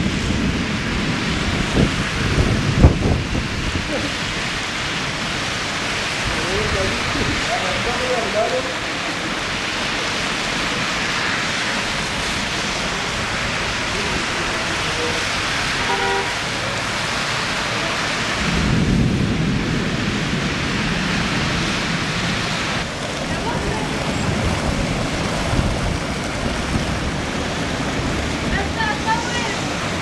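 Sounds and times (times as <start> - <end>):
rain falling: 0.0 - 30.0
deep low rumble: 17.5 - 28.7.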